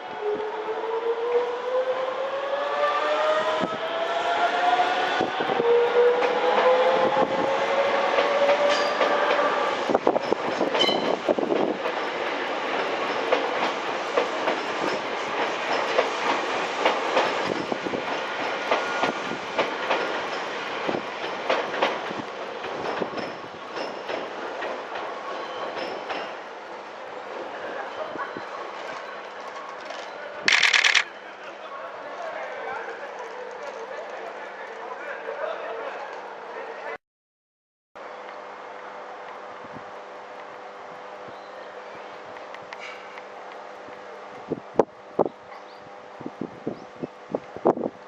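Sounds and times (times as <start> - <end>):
wheels clicking over rail joints: 29.7 - 31.1.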